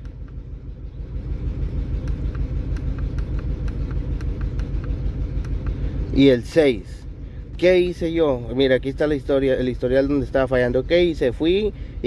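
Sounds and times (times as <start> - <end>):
car engine idling rough: 0.0 - 12.0
faint regular ticking: 1.4 - 6.1.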